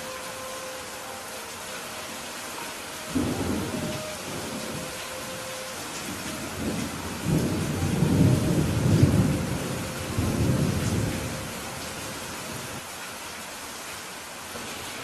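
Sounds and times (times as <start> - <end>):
heavy rain hissing: 0.0 - 15.0
thunder rumbling: 3.1 - 11.9.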